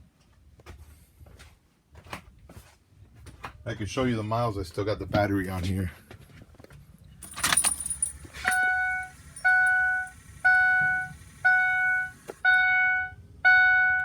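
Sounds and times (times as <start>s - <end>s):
keys jangling: 7.2s - 10.2s
dashboard warning chime: 7.3s - 14.0s.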